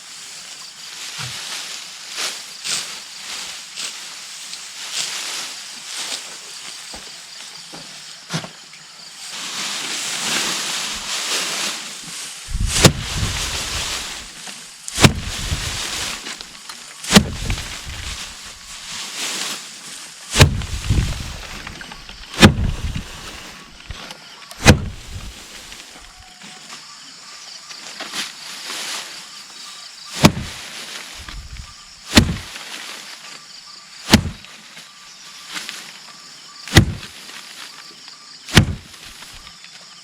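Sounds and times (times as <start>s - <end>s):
dry rustling hiss: 0.0s - 40.0s
heavy blows striking: 12.5s - 14.3s, 15.0s - 16.2s, 17.1s - 18.4s, 20.4s - 23.3s, 24.6s - 25.4s, 30.2s - 30.6s, 31.2s - 32.5s, 34.1s - 34.4s, 36.7s - 37.1s, 38.5s - 39.0s.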